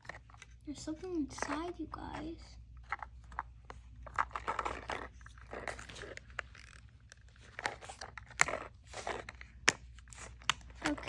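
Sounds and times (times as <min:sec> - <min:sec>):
plastic packaging crinkling: 0:00.0 - 0:11.0
plastic snapping: 0:02.9 - 0:11.0.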